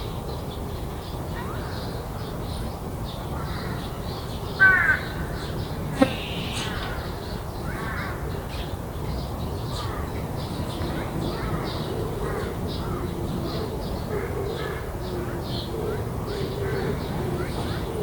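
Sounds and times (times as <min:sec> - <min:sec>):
crow cawing: 0:06.0 - 0:07.0.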